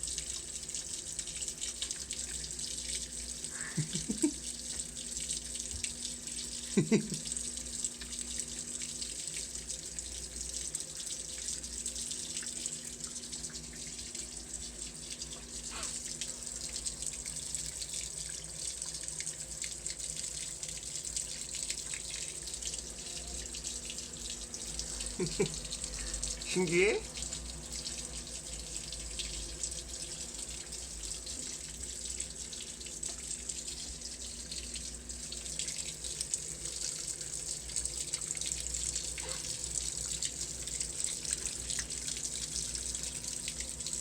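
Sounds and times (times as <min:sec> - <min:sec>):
water running: 0:00.0 - 0:44.0.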